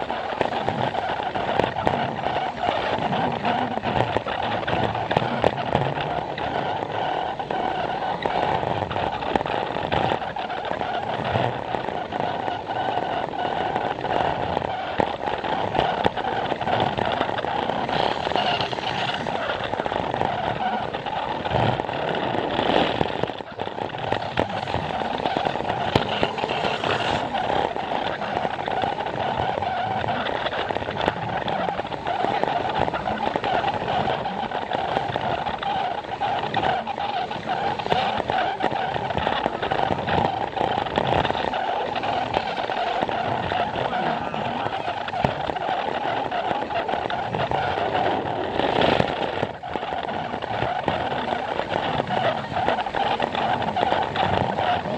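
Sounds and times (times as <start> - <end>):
wheels clicking over track joints: 0.0 - 54.9
toy train motor whine: 10.1 - 30.8.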